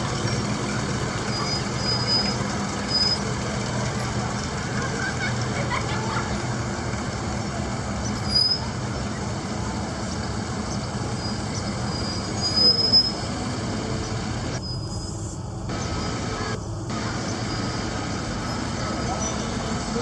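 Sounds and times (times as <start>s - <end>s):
cars passing: 0.0s - 14.6s, 15.7s - 20.0s
short high-pitched squeals: 0.1s - 3.6s, 11.2s - 13.6s.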